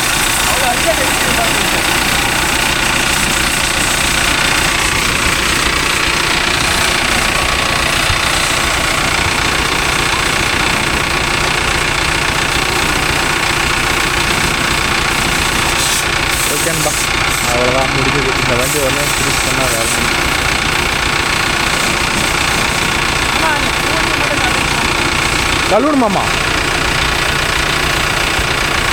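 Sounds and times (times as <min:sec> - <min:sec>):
engine running steadily: 0:00.0 - 0:28.9
hiss of water spray: 0:12.6 - 0:17.5.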